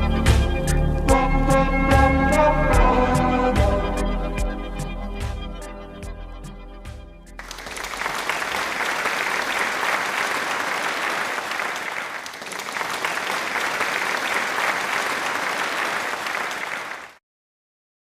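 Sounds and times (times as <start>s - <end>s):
crowd applauding: 7.4s - 17.2s.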